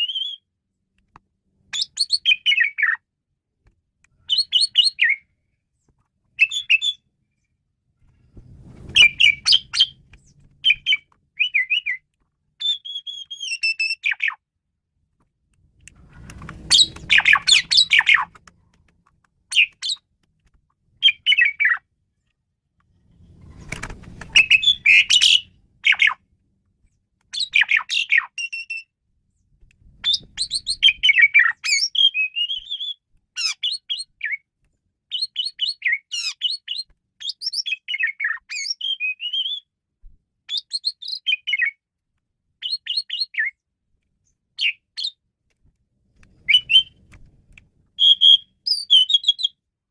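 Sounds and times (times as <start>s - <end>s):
starling singing: 9.0s - 10.0s, 10.6s - 12.0s, 16.6s - 18.3s, 21.0s - 21.8s, 24.4s - 26.2s.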